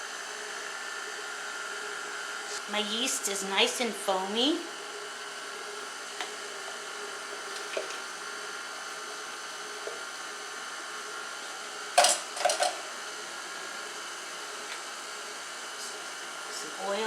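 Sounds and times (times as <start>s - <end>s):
kitchenware clattering: 12.0s - 12.8s.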